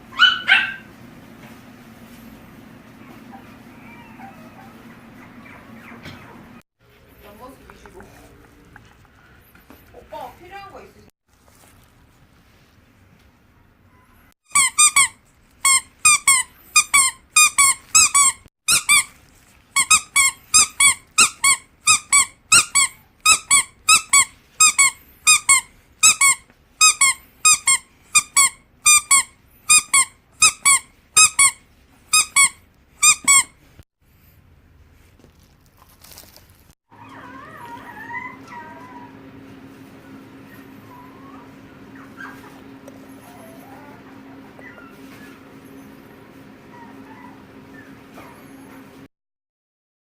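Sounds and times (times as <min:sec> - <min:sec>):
squeaky dog toy squeaking: 0:14.5 - 0:19.2, 0:19.8 - 0:33.7.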